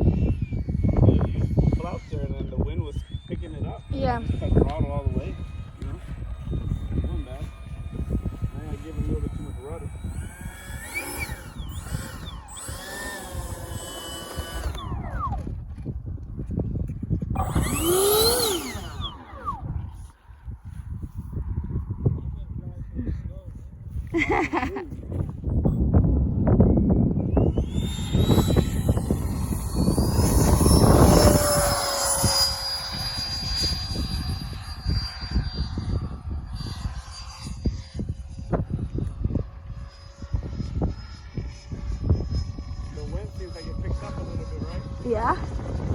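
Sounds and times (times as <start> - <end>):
rc jet ducted-fan whine: 0.0 - 23.5, 24.1 - 45.9
wind rumbling on microphone: 0.0 - 45.9.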